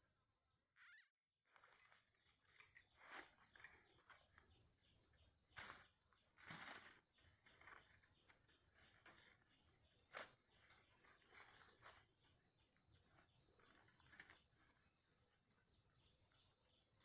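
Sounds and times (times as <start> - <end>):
high-pitched insect chorus: 1.5 - 17.0.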